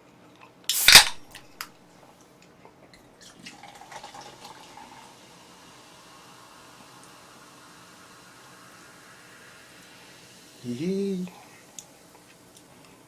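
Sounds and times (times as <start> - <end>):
soda pouring and fizzing: 0.7 - 1.2, 3.2 - 13.0.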